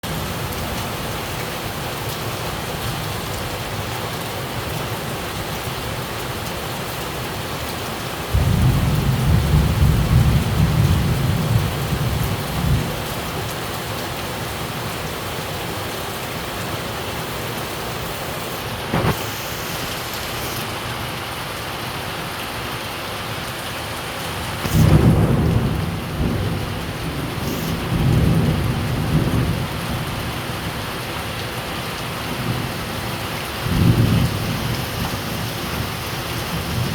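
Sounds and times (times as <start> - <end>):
heavy rain: 0.0 - 36.9
low rumble of thunder: 8.3 - 13.1, 24.7 - 30.5, 32.3 - 36.9.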